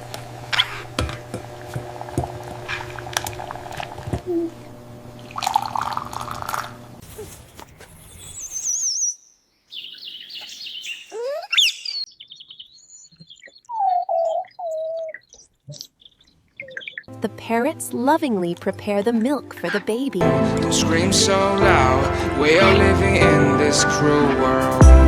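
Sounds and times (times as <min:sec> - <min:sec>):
parrot chirping and whistling: 0:08.1 - 0:15.8.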